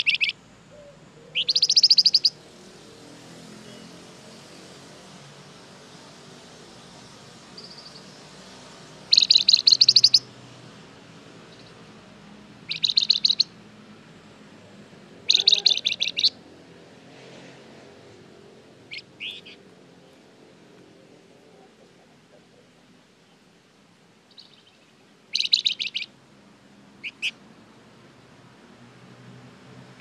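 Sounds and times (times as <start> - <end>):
short bird calls: 0.0 - 2.4, 9.1 - 10.3, 12.7 - 13.5, 15.3 - 16.4, 18.9 - 19.6, 24.3 - 26.2, 27.0 - 27.4
songbird chattering trills: 0.0 - 2.4, 7.6 - 8.2, 9.1 - 10.3, 11.5 - 11.8, 12.7 - 13.6, 15.2 - 16.4, 18.9 - 20.2, 24.3 - 26.2, 27.0 - 27.4.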